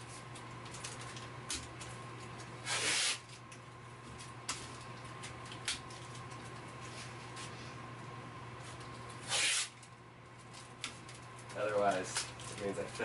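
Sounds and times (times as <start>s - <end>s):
steady low hum: 0.0s - 13.0s
adhesive tape pulled off roll: 2.6s - 3.4s, 9.2s - 9.8s.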